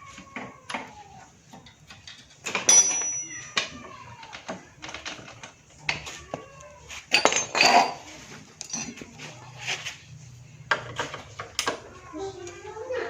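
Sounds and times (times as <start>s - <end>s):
metal tools clinking: 1.6s - 5.8s, 7.1s - 9.3s.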